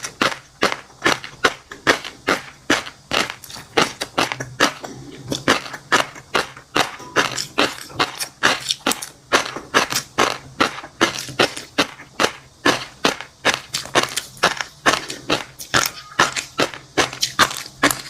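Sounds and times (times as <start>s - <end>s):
crunchy chewing: 0.0s - 18.0s.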